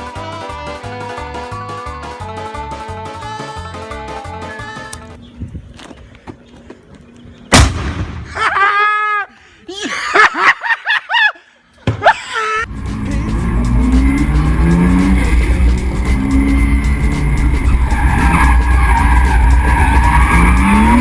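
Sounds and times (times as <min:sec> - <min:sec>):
sudden loud bang: 0:07.5 - 0:08.3
car engine revving: 0:12.7 - 0:21.0.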